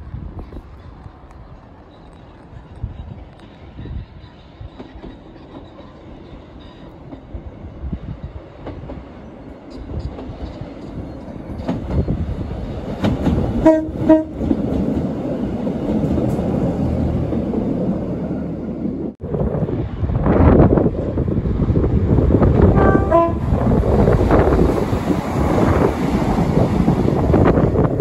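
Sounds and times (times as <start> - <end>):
diesel train passing: 0.0 - 28.0
train horn blasts: 13.6 - 14.5, 22.7 - 23.6.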